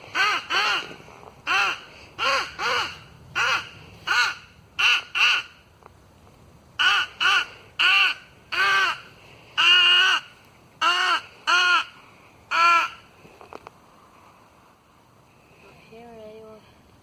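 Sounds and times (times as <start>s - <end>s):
crow call caws: 0.1s - 5.6s, 6.8s - 13.1s.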